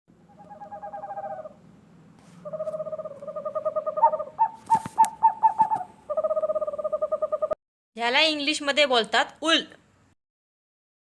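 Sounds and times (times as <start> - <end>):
owl trilling call: 0.2 - 1.6, 2.4 - 7.6.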